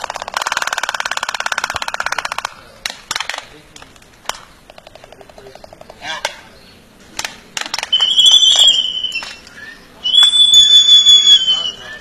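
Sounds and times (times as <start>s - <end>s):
bird high-pitched calls: 7.8s - 12.0s.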